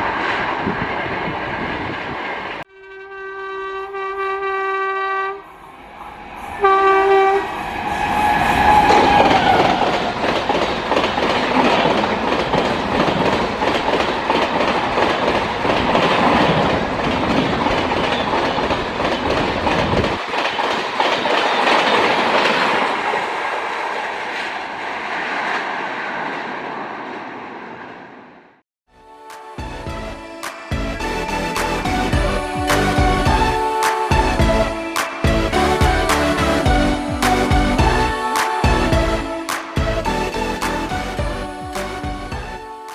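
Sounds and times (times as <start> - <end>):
train horn: 2.7 - 10.2.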